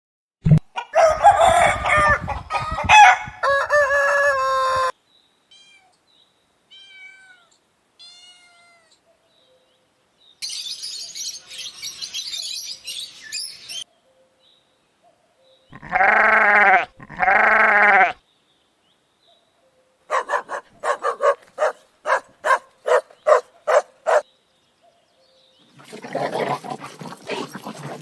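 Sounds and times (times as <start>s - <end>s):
rooster crowing: 0.8s - 4.9s, 20.1s - 24.2s.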